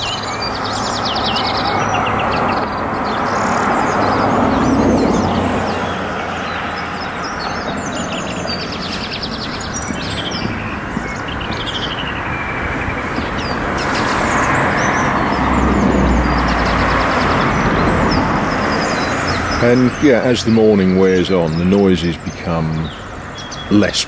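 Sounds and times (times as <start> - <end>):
road traffic rumble: 0.0 - 24.0
small songbirds singing: 0.0 - 24.0.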